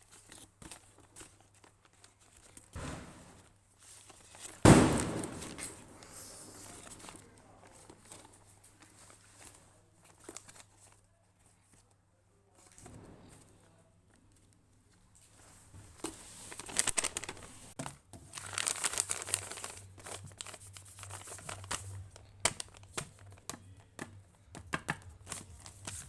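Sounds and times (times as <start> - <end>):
plastic packaging crinkling: 15.9 - 24.0
plastic packaging ripping: 16.5 - 23.6.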